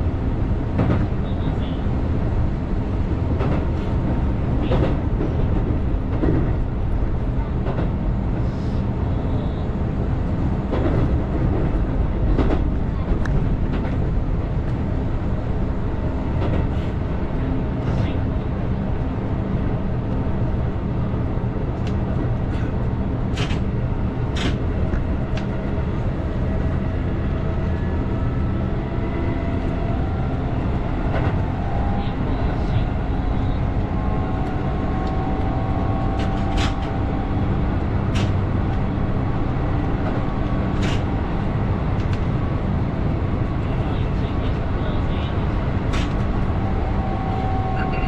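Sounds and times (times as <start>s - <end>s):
train wheels rumbling on rail: 0.0s - 48.0s
sharp track clicks: 38.0s - 42.4s.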